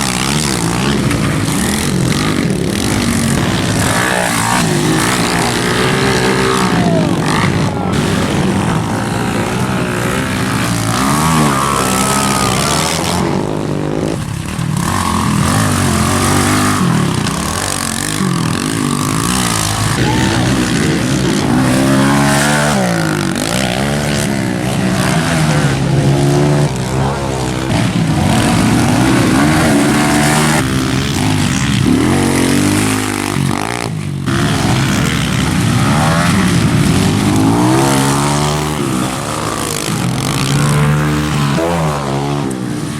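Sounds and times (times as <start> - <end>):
pit bike engines revving: 0.0 - 42.9.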